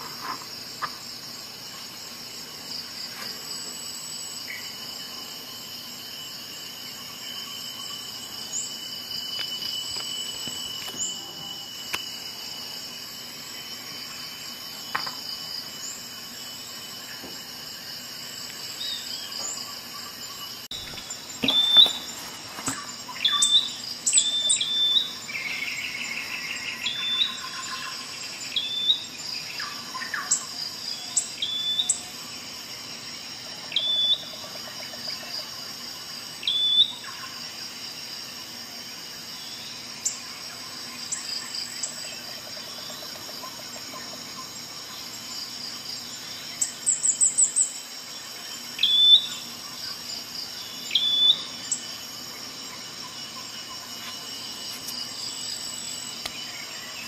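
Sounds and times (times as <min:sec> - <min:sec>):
birds chirping: 0:18.5 - 0:30.4.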